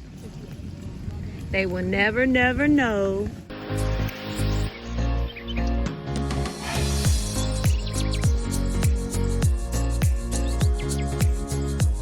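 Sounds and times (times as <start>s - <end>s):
deep bass kick: 7.0s - 12.0s.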